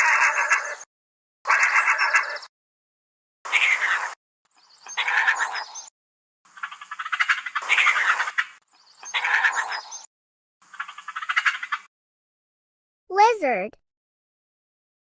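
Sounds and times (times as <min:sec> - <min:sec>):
animal raspy rattling call: 0:00.0 - 0:00.8, 0:01.5 - 0:02.5, 0:03.5 - 0:04.2, 0:04.9 - 0:05.8, 0:06.6 - 0:10.0, 0:10.7 - 0:11.9.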